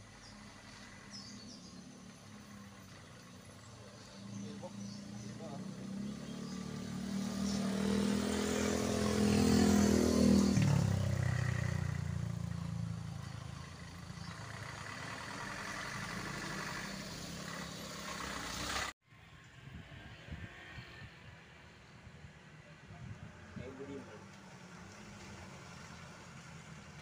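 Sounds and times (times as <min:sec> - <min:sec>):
truck engine driving past: 0:00.1 - 0:19.0.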